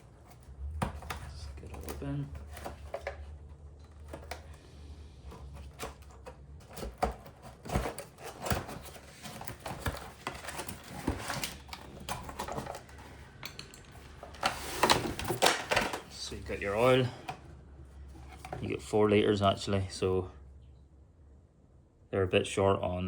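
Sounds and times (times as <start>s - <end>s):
cardboard box rustling: 0.0s - 18.9s
parts knocking and clattering: 5.3s - 17.5s.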